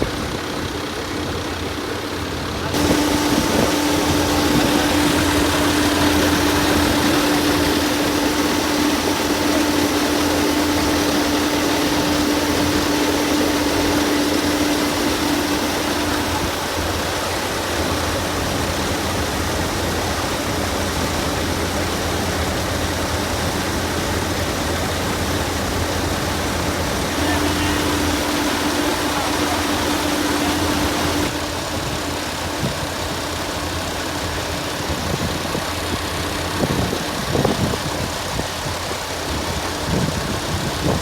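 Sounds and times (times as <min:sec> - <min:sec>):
harvester engine running: 0:00.0 - 0:41.0
held hum: 0:02.7 - 0:17.1, 0:27.1 - 0:32.4.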